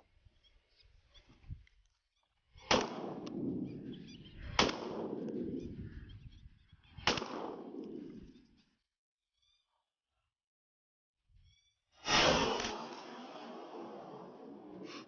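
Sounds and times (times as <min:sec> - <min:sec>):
shotgun shots with rolling echo: 0:02.6 - 0:05.9, 0:07.0 - 0:08.2.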